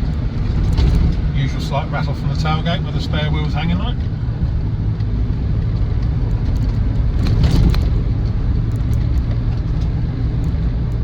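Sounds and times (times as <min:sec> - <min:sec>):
diesel engine and road noise: 0:00.0 - 0:11.0.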